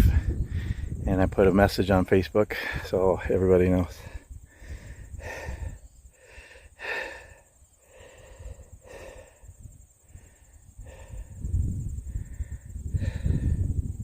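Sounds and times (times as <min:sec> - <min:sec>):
person breathing hard: 0:00.0 - 0:01.0, 0:03.9 - 0:14.0.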